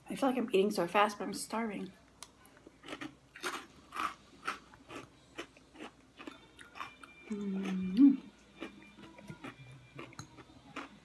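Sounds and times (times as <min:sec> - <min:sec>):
chewing crunchy salad: 0:02.2 - 0:11.0.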